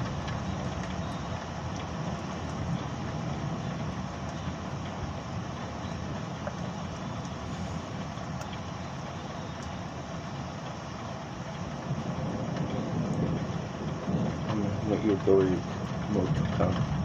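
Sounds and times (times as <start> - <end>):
rain: 0.0 - 17.0
wind: 0.0 - 17.0
faint ticks: 6.4 - 7.4, 8.0 - 9.8.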